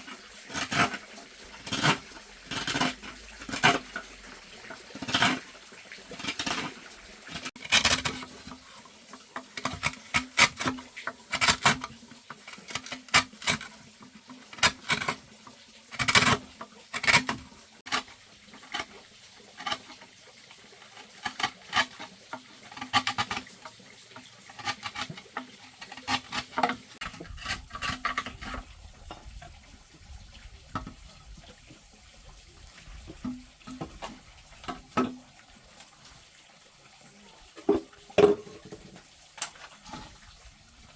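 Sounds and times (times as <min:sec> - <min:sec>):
objects clattering: 0:37.6 - 0:40.2.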